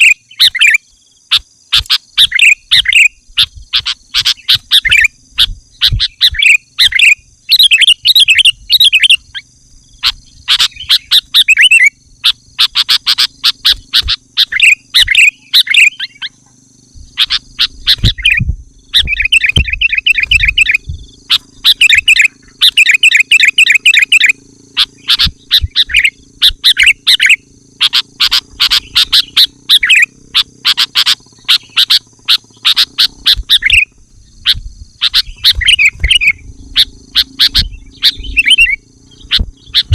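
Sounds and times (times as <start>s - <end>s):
bulbul singing bubbly chirps: 0.0s - 39.9s.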